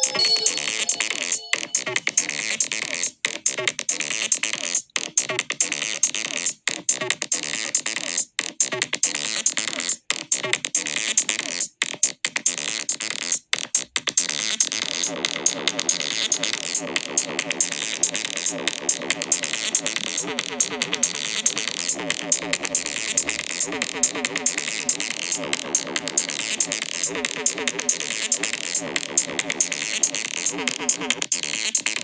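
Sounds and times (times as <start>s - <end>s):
noisy synthesizer music: 0.0s - 2.2s.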